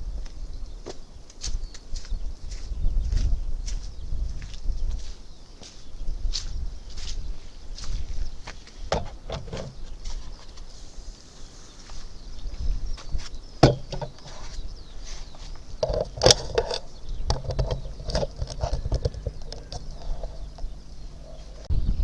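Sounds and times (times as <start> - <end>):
birds chirping faintly: 0.0 - 22.0
knocks and clicks of handling: 13.6 - 14.3, 15.8 - 20.7.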